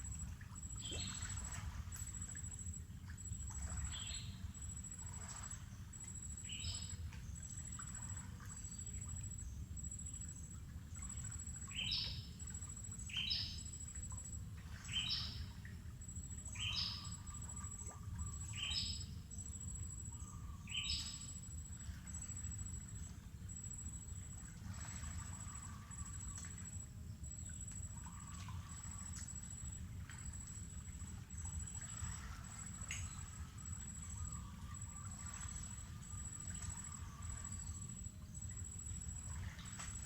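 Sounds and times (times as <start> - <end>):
insect buzz: 14.8 - 40.0.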